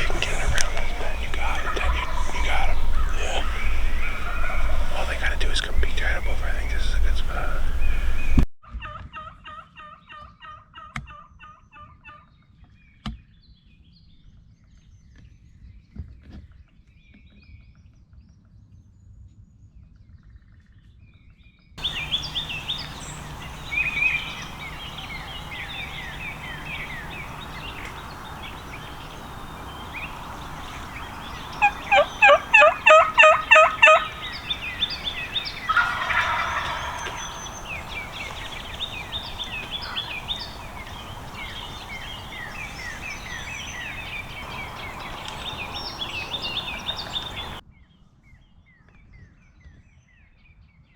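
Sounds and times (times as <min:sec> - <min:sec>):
turkeys gobbling: 0:00.0 - 0:08.4, 0:21.8 - 0:47.6
songbirds chirping: 0:00.0 - 0:08.5, 0:21.8 - 0:47.6.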